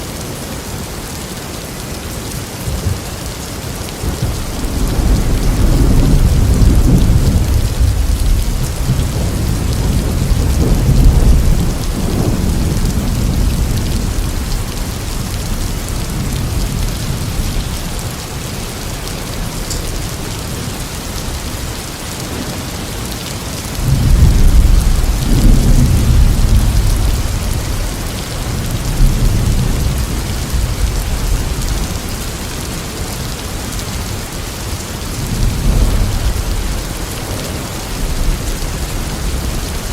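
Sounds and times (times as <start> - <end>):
steady rain: 0.0 - 39.9
rolling thunder: 4.0 - 21.3, 23.7 - 33.3, 35.1 - 39.9.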